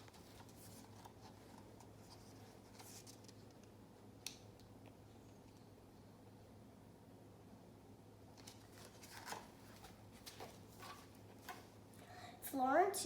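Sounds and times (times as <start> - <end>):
paper book pages rustling: 0.0 - 3.6, 8.4 - 11.7.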